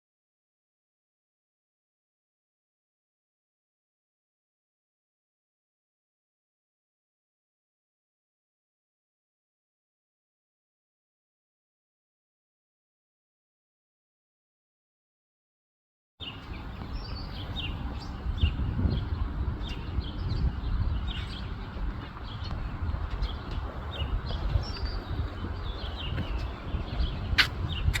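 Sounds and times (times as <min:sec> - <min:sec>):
small birds chirping: 0:16.2 - 0:28.0.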